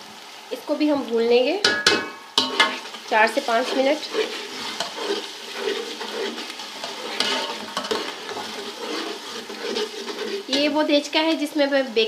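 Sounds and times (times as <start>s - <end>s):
paste sizzling in a pot: 0.0s - 12.0s
spoon knocking against pot: 1.6s - 2.7s.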